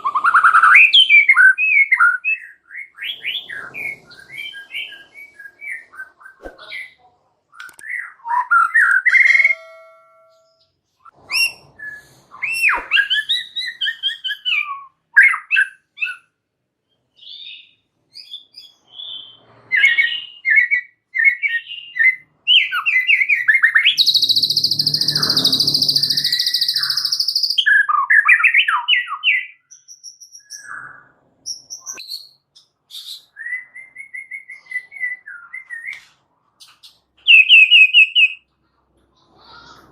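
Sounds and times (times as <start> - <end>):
bird singing whistles and trills: 0.0 - 6.9, 7.6 - 10.6, 11.3 - 16.3, 17.1 - 36.0, 36.8 - 38.4
harsh buzzing rattle: 24.0 - 27.2.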